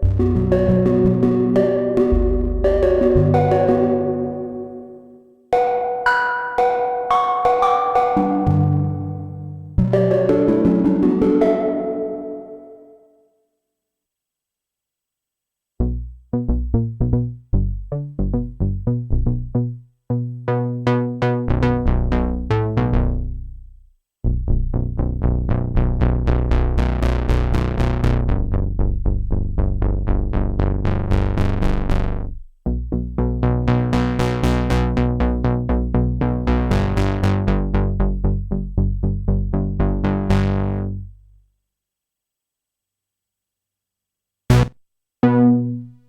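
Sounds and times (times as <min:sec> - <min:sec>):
deep sustained synth bass: 0:00.0 - 0:04.8
synthesizer plucked sequence: 0:00.0 - 0:13.2.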